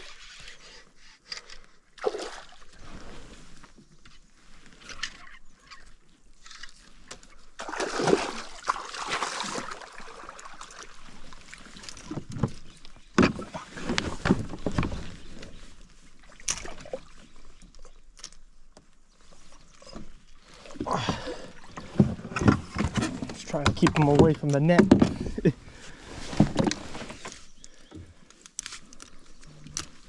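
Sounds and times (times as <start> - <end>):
water splashing against kayak: 2.0 - 5.0, 6.5 - 17.8, 19.3 - 28.3.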